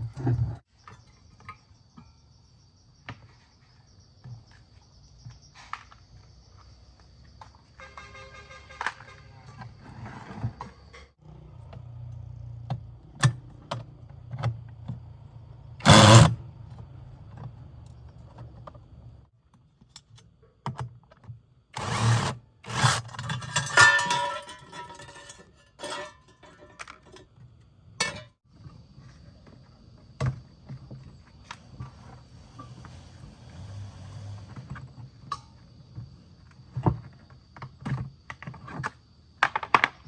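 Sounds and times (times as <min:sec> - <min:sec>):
tools and parts clattering: 0:21.8 - 0:28.4.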